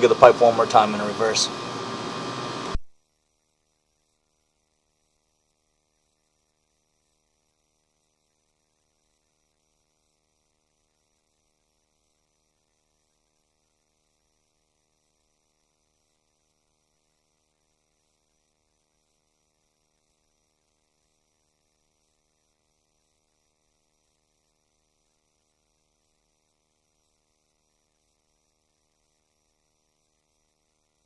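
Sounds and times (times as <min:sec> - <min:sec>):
faint electrical hum with hiss: 0:00.0 - 0:02.9.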